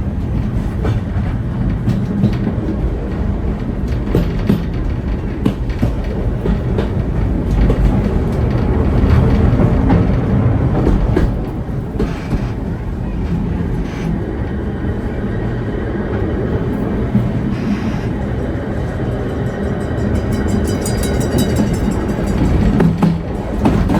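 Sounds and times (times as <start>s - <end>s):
train wheels rumbling on rails: 0.0s - 23.9s
clicks over rail joints: 0.4s - 14.4s, 20.9s - 23.9s.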